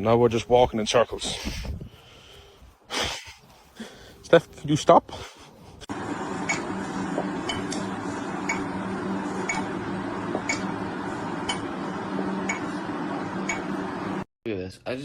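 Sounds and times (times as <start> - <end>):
steady low hum: 5.9 - 14.3
clock ticking: 8.5 - 8.7.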